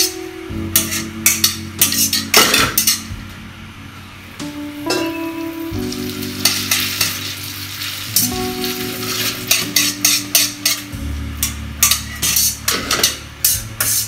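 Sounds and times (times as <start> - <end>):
wok scraping clinks: 0.7 - 3.1, 6.4 - 14.0
spaghetti sizzling in a wok: 5.0 - 14.0
metal tongs stirring pasta: 6.4 - 10.8.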